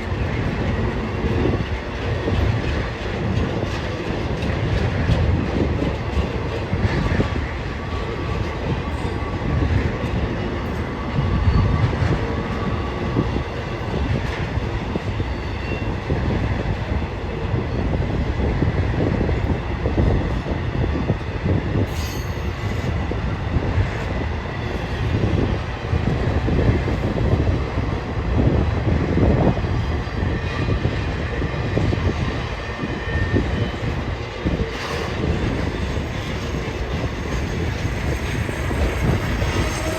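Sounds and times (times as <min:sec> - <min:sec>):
train wheels rumbling on rail: 0:00.0 - 0:39.9
faint wheel squeal: 0:34.8 - 0:39.9.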